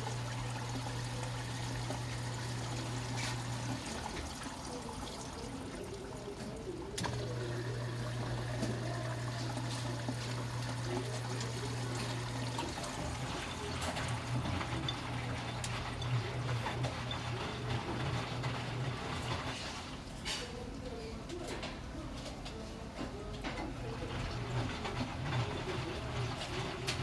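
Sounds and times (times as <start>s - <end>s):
water trickling and splashing: 0.0s - 15.8s
washing machine hum: 0.0s - 27.0s
washing machine click: 6.3s - 7.4s.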